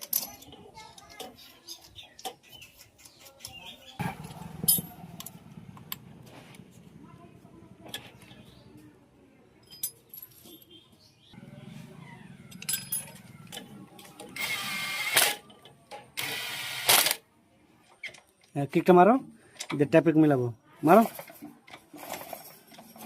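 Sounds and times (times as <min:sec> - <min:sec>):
metal tools clinking: 0:00.0 - 0:03.6, 0:04.2 - 0:05.4, 0:09.6 - 0:10.8, 0:12.4 - 0:14.5, 0:20.8 - 0:23.0.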